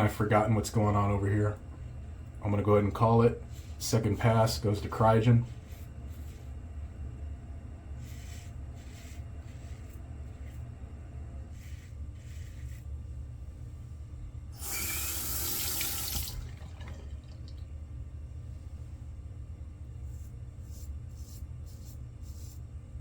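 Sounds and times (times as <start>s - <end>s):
steady low hum: 0.0s - 23.0s
sink faucet running: 14.6s - 17.6s.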